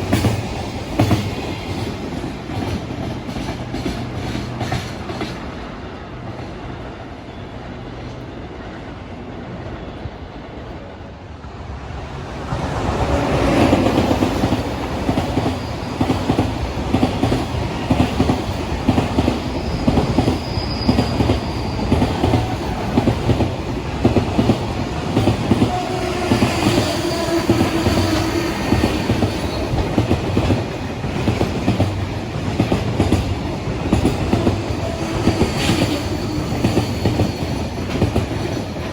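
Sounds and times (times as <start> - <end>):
train passing with low rumble: 0.0 - 38.9.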